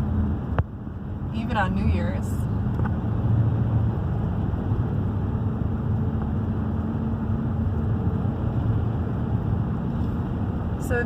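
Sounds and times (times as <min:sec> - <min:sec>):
van engine and tyre rumble: 0:00.0 - 0:11.0.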